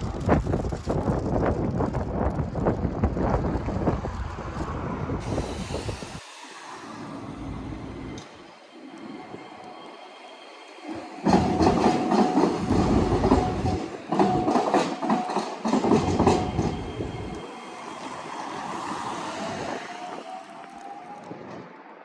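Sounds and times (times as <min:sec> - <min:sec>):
train rumble: 0:00.0 - 0:22.0
train wheels clacking over crossing: 0:10.8 - 0:21.7.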